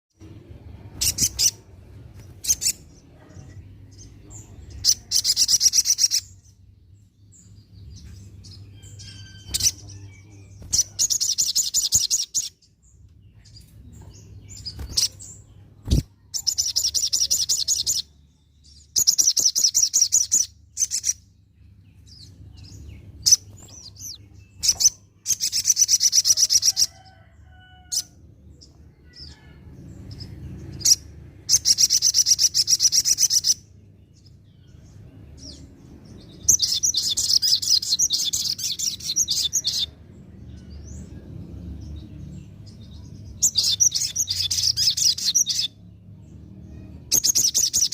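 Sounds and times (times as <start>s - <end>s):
faint low hum: 0.2s - 19.1s
bird trilling and chirping: 0.2s - 47.9s.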